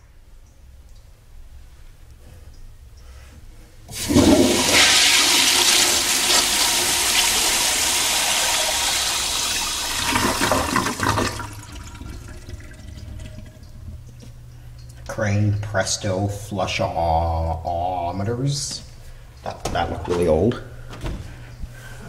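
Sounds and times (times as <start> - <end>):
toilet flushing: 3.9 - 14.1.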